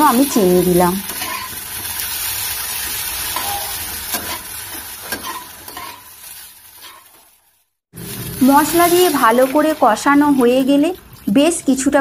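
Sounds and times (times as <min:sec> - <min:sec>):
vegetables sizzling in oil: 0:00.0 - 0:12.0
metal spatula scraping pan: 0:01.1 - 0:01.6, 0:02.9 - 0:06.2, 0:06.8 - 0:07.4.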